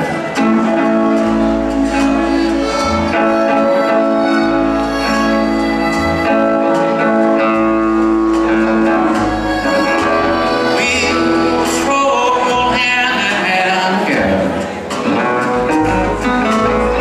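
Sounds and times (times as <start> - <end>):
country band playing slow ballad: 0.0 - 17.0.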